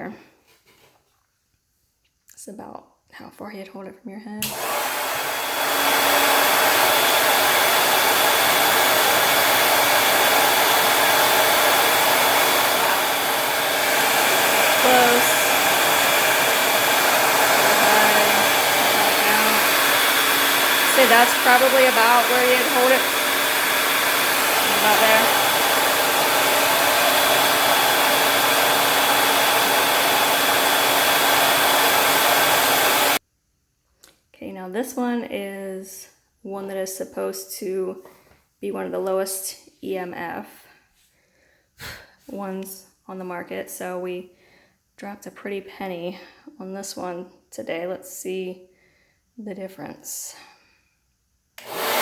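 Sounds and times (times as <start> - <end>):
hair dryer blowing air: 4.4 - 33.2, 51.6 - 52.0
hair dryer high whine: 4.4 - 33.2, 51.6 - 52.0.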